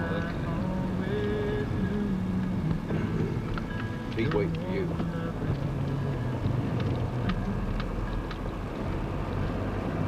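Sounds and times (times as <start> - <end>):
car engine running: 0.0 - 10.0
road noise inside car: 0.0 - 10.0
faint ticks: 3.5 - 9.5.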